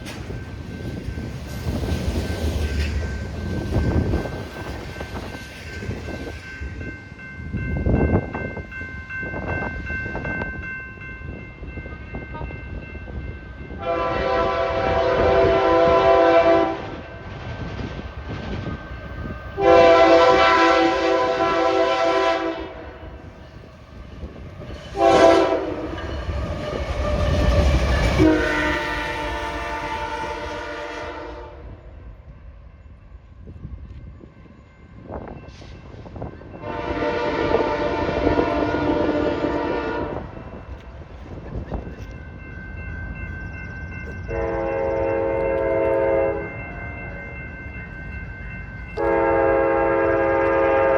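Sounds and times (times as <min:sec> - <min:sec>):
rumble of passing train: 0:00.0 - 0:50.9
locomotive air horn blasts: 0:13.8 - 0:17.0, 0:19.6 - 0:22.9, 0:25.0 - 0:25.9, 0:28.2 - 0:31.8, 0:36.6 - 0:40.3, 0:44.3 - 0:46.4, 0:49.0 - 0:50.9.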